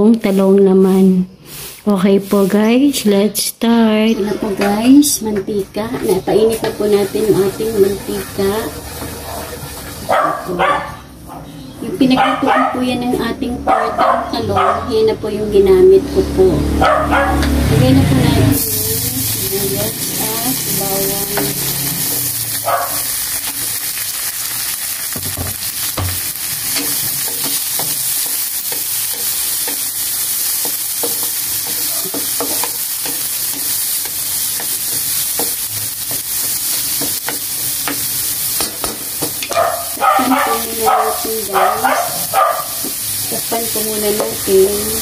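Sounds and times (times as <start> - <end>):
onions sizzling in oil: 0.0 - 3.3, 4.2 - 10.6, 17.4 - 45.0
wooden spatula scraping pan: 5.9 - 10.6.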